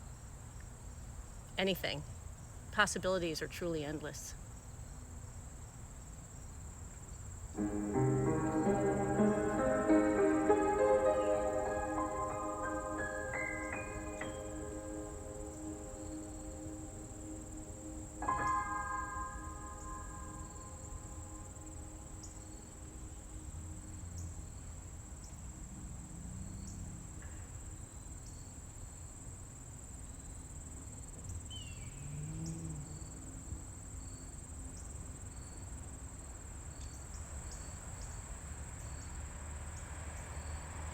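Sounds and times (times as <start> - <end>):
insects trilling: 1.7 - 39.2
bell-like chime: 7.6 - 16.8.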